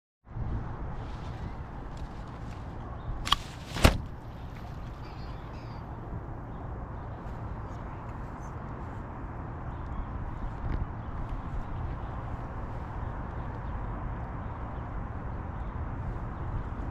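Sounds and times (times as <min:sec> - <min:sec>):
low background rumble: 0:00.3 - 0:16.9
gulls calling faintly: 0:01.3 - 0:08.7.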